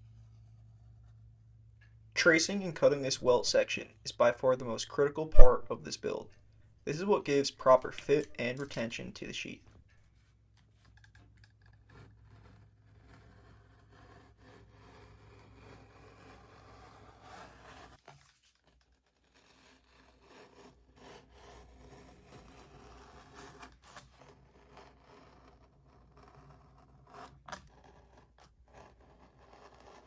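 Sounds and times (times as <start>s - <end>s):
knife scraping through leather: 10.8s - 30.0s.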